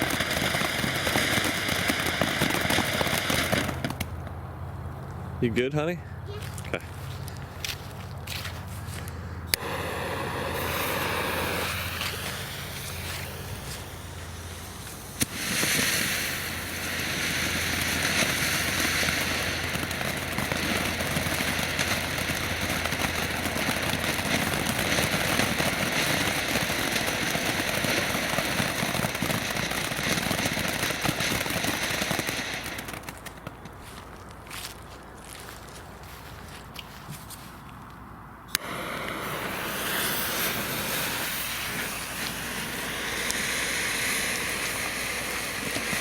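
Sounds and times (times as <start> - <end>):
firework fountain hissing: 0.0 - 4.1, 9.5 - 33.6, 38.5 - 46.0
firework fuse fizzing: 0.0 - 4.2, 9.5 - 34.1, 38.5 - 46.0
firework pop: 9.5 - 20.0.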